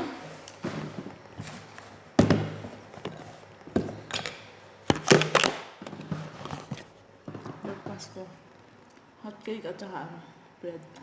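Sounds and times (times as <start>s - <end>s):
objects knocking on hard surface: 7.3s - 8.0s.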